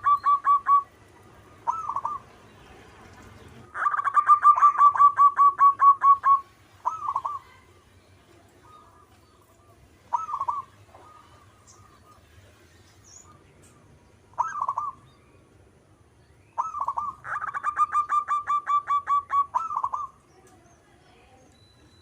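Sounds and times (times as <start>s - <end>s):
dove cooing: 0.0s - 2.5s, 3.4s - 7.7s, 8.6s - 12.4s, 14.4s - 15.1s, 16.6s - 20.2s.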